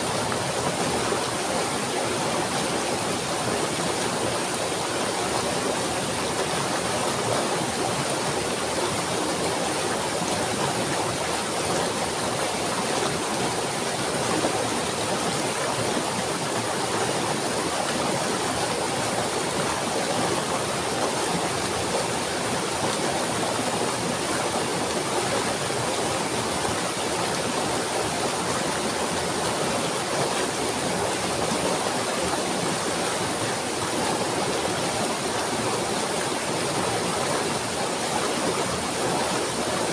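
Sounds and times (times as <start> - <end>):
water flowing: 0.0 - 39.9.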